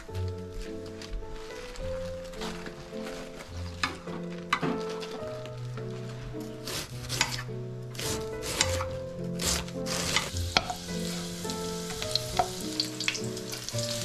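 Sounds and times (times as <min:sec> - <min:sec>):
spatula clicking and scraping pan: 0:06.8 - 0:10.9
spices sizzling in hot oil: 0:09.4 - 0:14.0.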